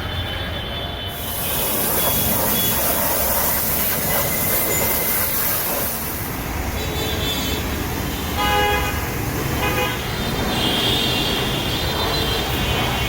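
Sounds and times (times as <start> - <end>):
street traffic rumble: 0.0 - 13.0
pressure washer jet hissing: 1.1 - 6.8.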